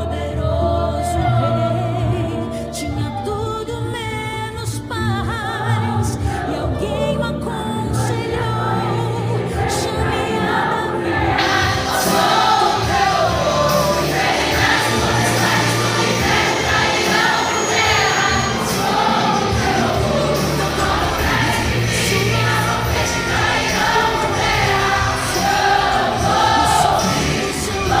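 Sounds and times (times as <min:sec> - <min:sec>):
choir singing a hymn: 0:00.0 - 0:03.2, 0:05.6 - 0:28.0
instrumental accompaniment: 0:08.1 - 0:28.0.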